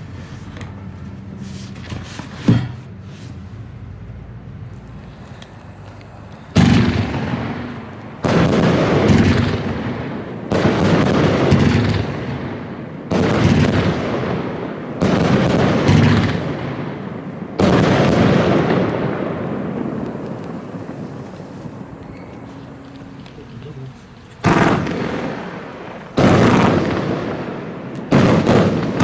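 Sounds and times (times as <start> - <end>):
rumble of fireworks bursting: 4.4 - 29.0
fireworks bangs: 5.8 - 29.0.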